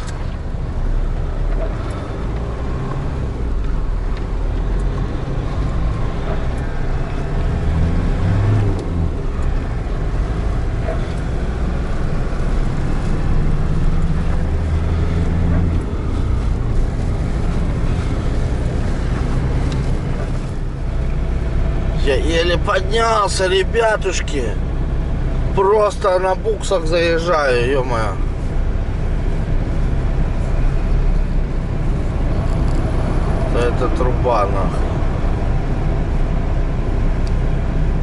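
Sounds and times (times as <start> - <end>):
van engine pulling under load: 0.0 - 38.0.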